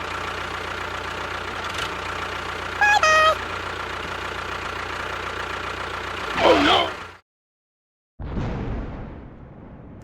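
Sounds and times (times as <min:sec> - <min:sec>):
small engine idling: 0:00.0 - 0:07.2
two-note horn beep: 0:02.8 - 0:03.4.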